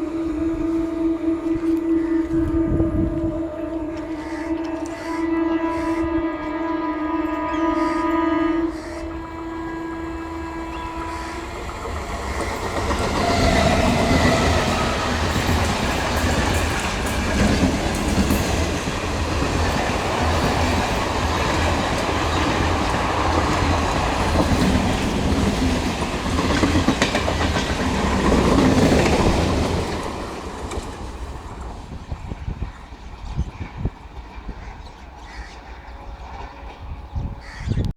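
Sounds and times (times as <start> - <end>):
train wheels clattering: 8.8 - 37.2.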